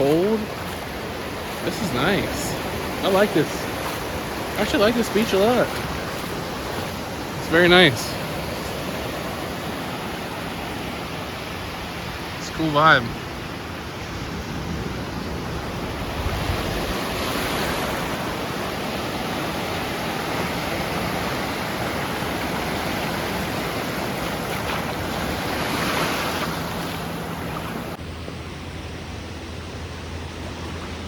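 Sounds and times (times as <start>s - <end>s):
ocean surf washing on shore: 0.0s - 31.0s
wind on microphone: 13.7s - 18.2s.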